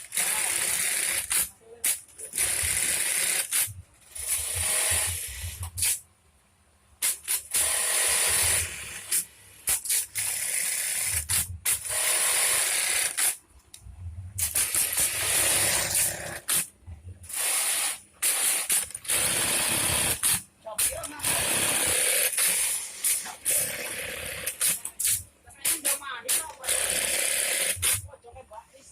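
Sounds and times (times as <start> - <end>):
sewing machine mechanical rattle: 17.3 - 28.0.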